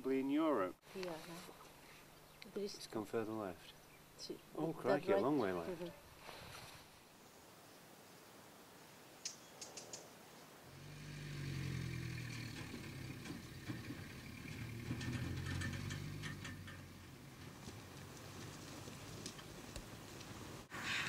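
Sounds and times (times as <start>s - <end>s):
vehicle engine humming: 10.7s - 20.7s.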